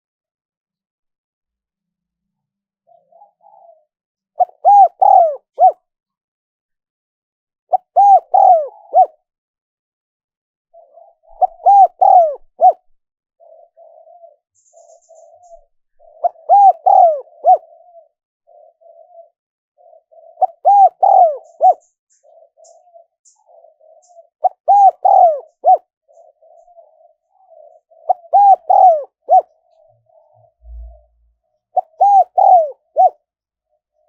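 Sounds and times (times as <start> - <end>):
dove cooing: 2.8 - 5.8, 7.7 - 9.2, 10.8 - 33.2
softer lower cooing: 2.9 - 5.8, 7.7 - 9.2, 10.8 - 12.8, 15.2 - 18.2, 20.0 - 21.8, 24.4 - 25.9, 28.0 - 29.6, 31.8 - 33.2.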